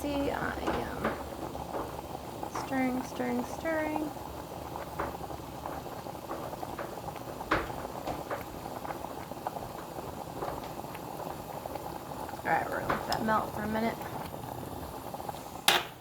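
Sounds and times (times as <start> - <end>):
bubbling hiss from pot: 0.0 - 16.0
spoon stirring wax in pot: 0.2 - 16.0.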